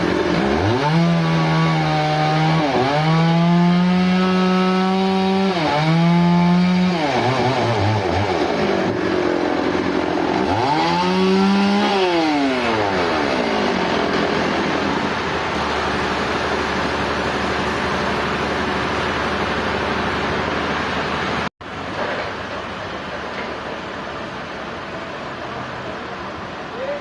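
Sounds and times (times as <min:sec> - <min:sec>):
chainsaw engine revving: 0:00.0 - 0:21.0.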